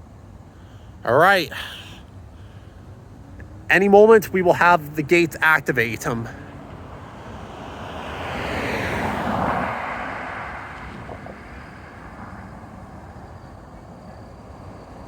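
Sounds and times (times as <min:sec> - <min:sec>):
faint steady background hum: 0:00.0 - 0:08.0
vehicle driving past: 0:03.1 - 0:15.0.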